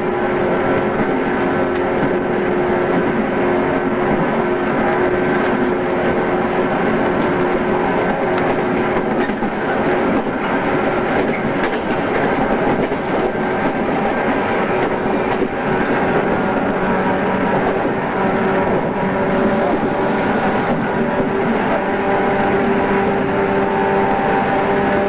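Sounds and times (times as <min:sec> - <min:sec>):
train wheels rumbling: 0:00.0 - 0:25.0
faint rail-joint clicks: 0:11.2 - 0:13.8.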